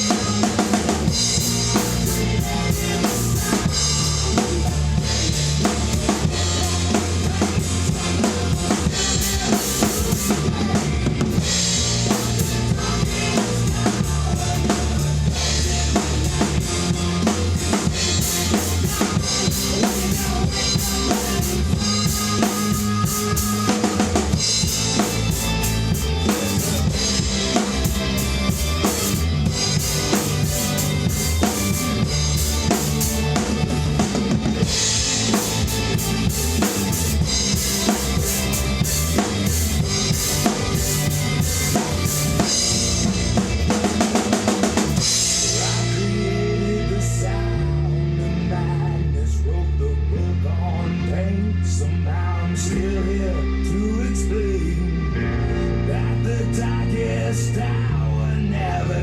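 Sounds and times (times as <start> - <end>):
hard rock track: 0.0 - 59.0
rock drum kit played hard: 0.0 - 59.0.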